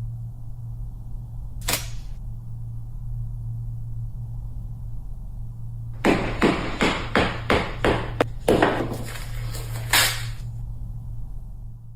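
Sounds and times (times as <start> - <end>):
steady low hum: 0.0 - 11.9
sharp knocks: 6.0 - 9.2.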